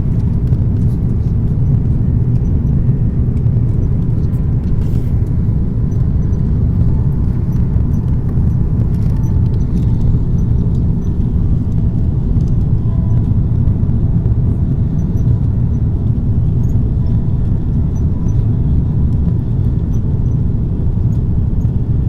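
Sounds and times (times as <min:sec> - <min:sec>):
airliner engines in cabin: 0:00.0 - 0:22.0.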